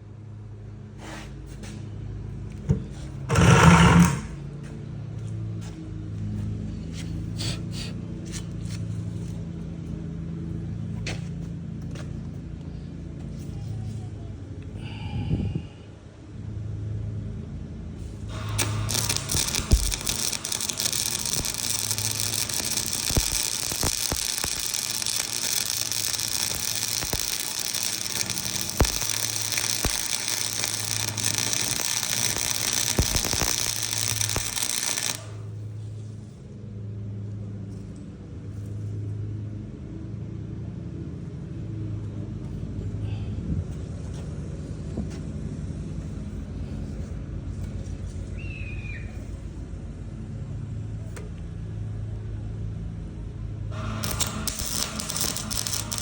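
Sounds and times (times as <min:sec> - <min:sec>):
small engine running: 0:03.3 - 0:04.4, 0:18.1 - 0:35.6, 0:53.7 - 0:56.0
loud hiss: 0:18.3 - 0:35.4, 0:53.8 - 0:56.0
scattered clicks: 0:18.4 - 0:35.3, 0:53.8 - 0:56.0.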